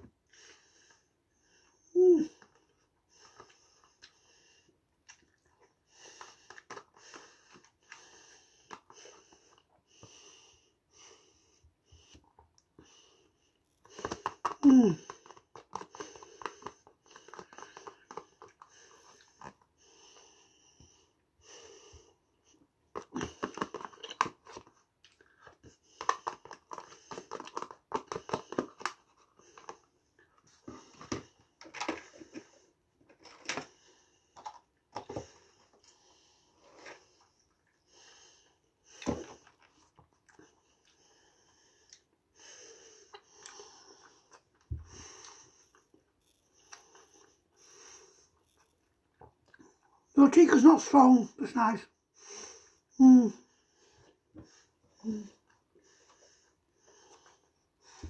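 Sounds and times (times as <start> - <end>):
wet chewing sounds: 5.0 - 9.8, 13.8 - 19.7, 22.9 - 32.6, 42.9 - 50.1.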